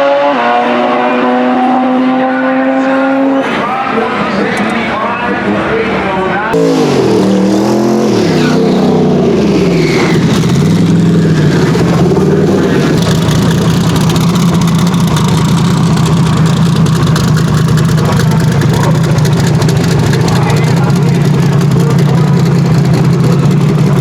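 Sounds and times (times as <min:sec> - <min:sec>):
racing car engine revving: 0:00.0 - 0:24.0
loud engine idle: 0:09.2 - 0:24.0.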